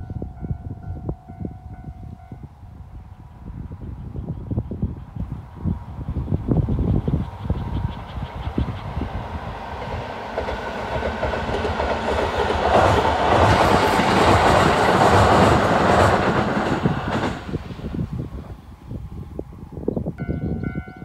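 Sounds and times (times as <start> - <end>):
passing train rushing rumble: 0.0 - 21.0
train wheels clattering over rail joints: 7.5 - 17.9.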